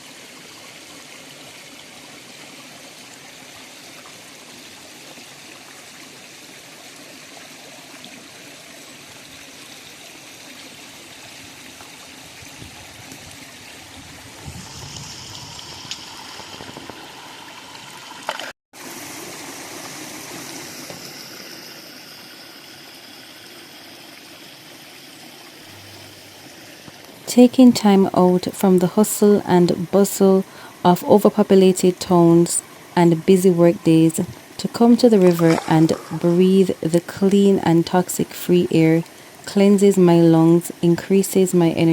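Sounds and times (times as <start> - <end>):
river water flowing: 0.0 - 41.9.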